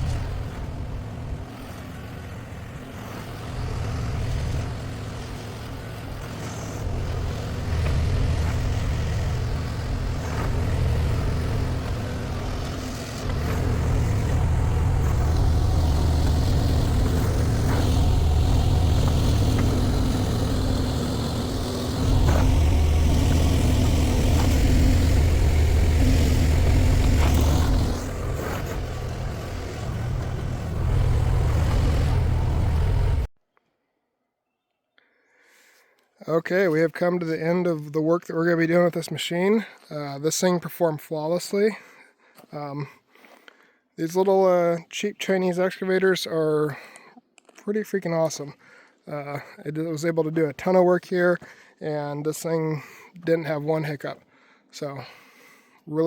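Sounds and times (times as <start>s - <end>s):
excavator diesel engine working: 0.0s - 33.3s.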